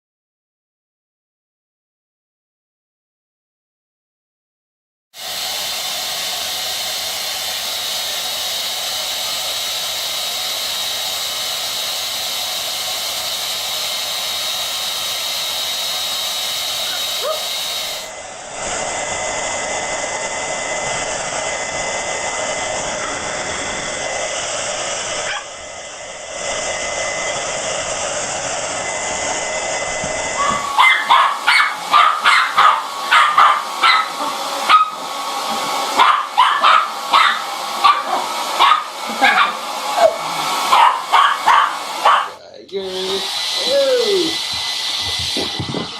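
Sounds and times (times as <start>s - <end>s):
hair dryer blowing: 5.2s - 45.9s
dog barking and yipping: 16.8s - 17.7s, 25.2s - 25.6s, 30.3s - 42.4s.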